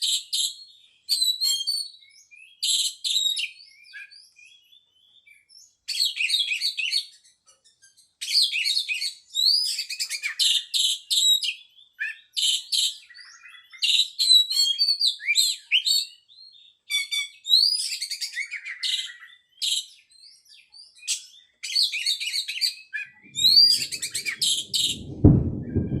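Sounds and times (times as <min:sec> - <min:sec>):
low rumble: 0:23.2 - 0:26.0.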